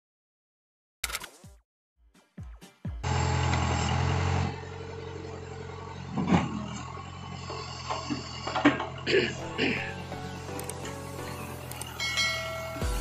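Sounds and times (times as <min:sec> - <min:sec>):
diesel engine idling: 0:03.0 - 0:13.0.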